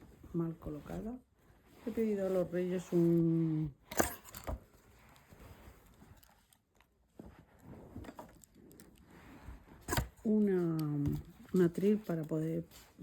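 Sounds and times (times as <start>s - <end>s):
faint scratchy rustling: 0.0s - 3.8s.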